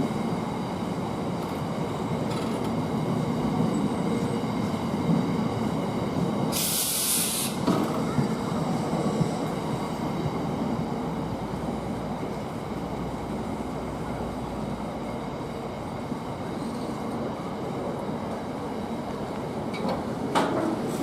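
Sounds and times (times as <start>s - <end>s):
diesel freight train rumble: 0.0s - 21.0s
air hiss burst: 6.5s - 7.7s.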